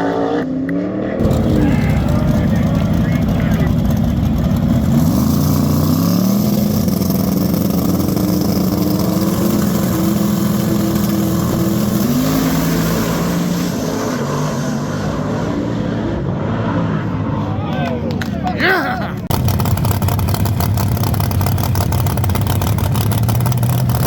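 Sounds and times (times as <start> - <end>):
car engine running: 1.2 - 13.4, 18.1 - 24.0.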